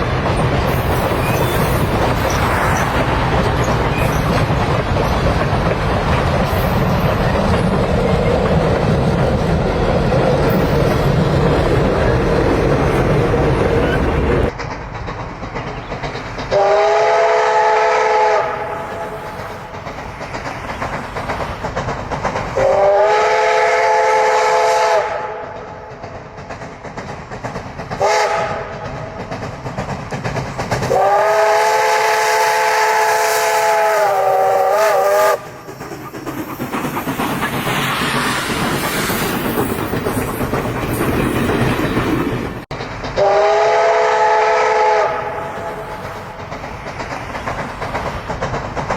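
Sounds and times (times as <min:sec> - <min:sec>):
train hissing and running: 0:00.0 - 0:48.9
steam locomotive chime whistle: 0:16.5 - 0:19.3, 0:22.6 - 0:25.6, 0:28.0 - 0:28.8, 0:30.9 - 0:35.5, 0:43.2 - 0:45.9.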